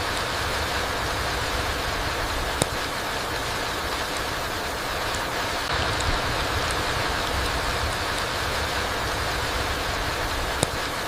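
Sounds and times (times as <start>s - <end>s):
rain falling through trees: 0.0s - 11.0s
sharp tick: 2.5s - 3.0s, 5.1s - 9.6s, 10.5s - 11.0s
low rumble: 5.7s - 10.6s.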